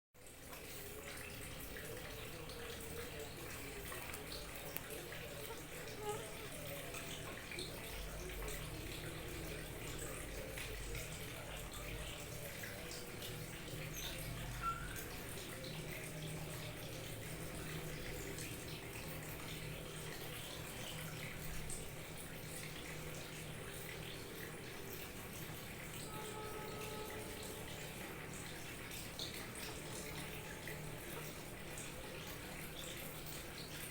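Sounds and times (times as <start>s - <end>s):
water trickling and splashing: 0.2s - 33.9s.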